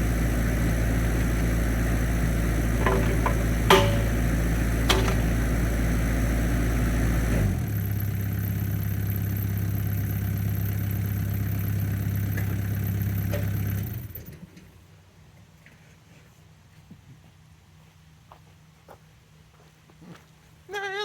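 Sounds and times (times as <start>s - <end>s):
excavator diesel engine running: 0.0s - 14.4s.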